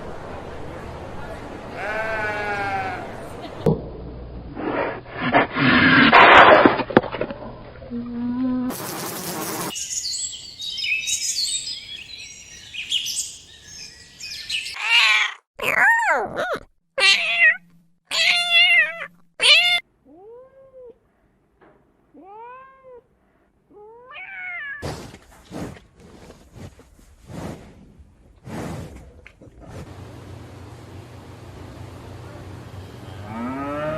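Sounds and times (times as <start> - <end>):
high hissy noise: 8.7 - 9.9
cat meowing: 14.8 - 21.0, 23.7 - 24.8.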